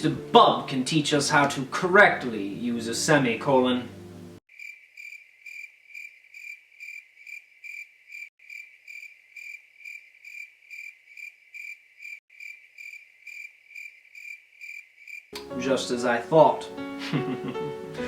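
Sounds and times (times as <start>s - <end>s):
cricket chirping: 4.5s - 15.3s.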